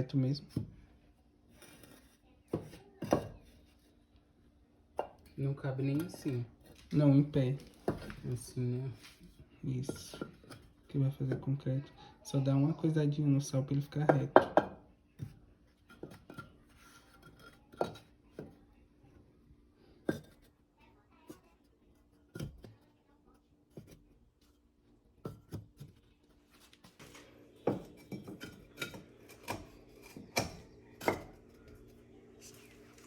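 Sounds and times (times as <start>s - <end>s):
clay bricks knocking and scraping: 5.0s - 11.6s, 14.0s - 18.6s, 20.0s - 20.6s, 22.0s - 22.8s, 23.4s - 33.0s.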